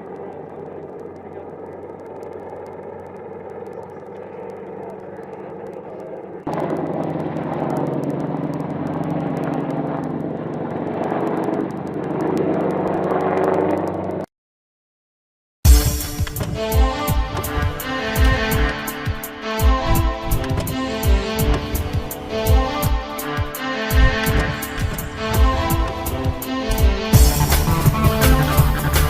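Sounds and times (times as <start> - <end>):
helicopter engine and rotor droning: 0.0 - 14.3, 15.8 - 29.0.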